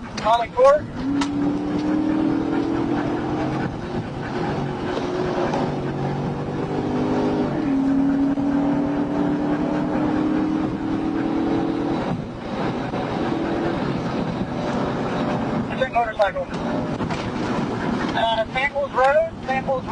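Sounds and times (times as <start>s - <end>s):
car engine accelerating hard: 0.0s - 19.9s.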